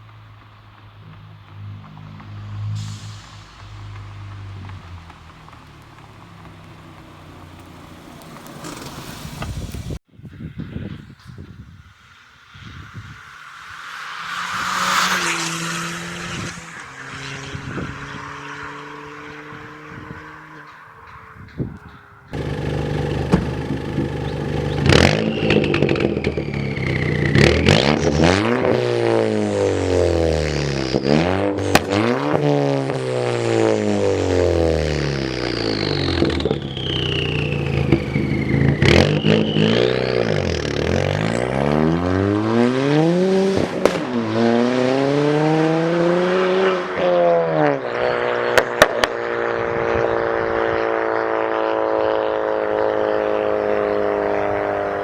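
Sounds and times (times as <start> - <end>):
car engine revving: 0.0 - 10.0, 13.2 - 55.0
exhaust cracks: 0.0 - 10.0, 15.7 - 45.5
high falling turbo whistle: 22.4 - 28.1, 35.0 - 41.6.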